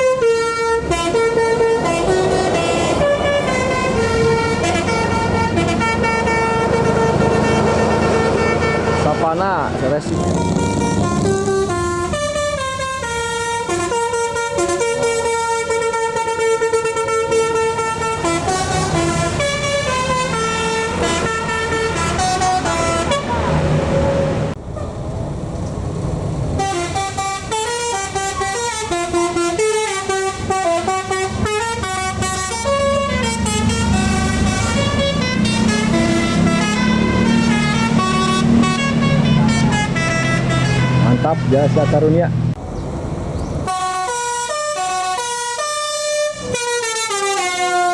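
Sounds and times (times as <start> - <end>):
bus horn playing a tune: 0.0 - 24.6, 26.6 - 42.3, 43.6 - 47.9
diesel engine running: 0.0 - 29.3, 30.6 - 44.4.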